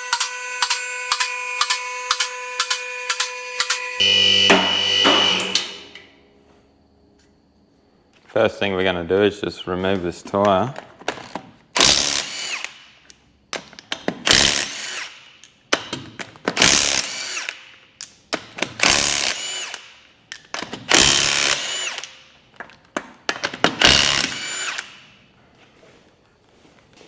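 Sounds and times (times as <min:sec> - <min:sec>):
impact wrench bursts: 0:00.0 - 0:05.8.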